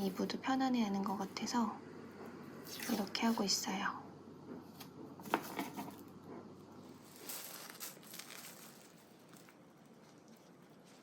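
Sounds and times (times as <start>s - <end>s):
diaper crinkling and rustling: 6.8s - 11.0s.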